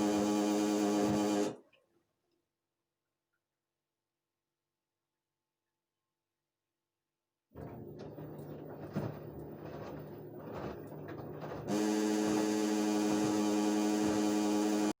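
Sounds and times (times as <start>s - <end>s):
loud electric hum: 0.0s - 1.6s, 11.7s - 15.0s
washing machine running: 0.0s - 1.6s, 7.6s - 15.0s.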